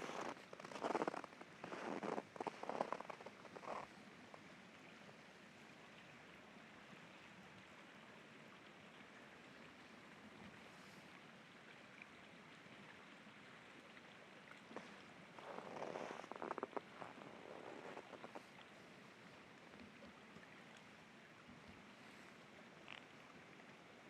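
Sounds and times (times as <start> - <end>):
boot crunching in snow: 0.0 - 3.7.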